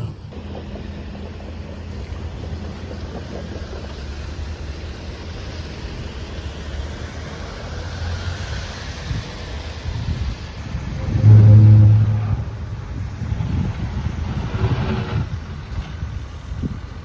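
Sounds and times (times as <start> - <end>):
steady rumbling noise: 0.0 - 17.0
low hum: 10.8 - 13.4.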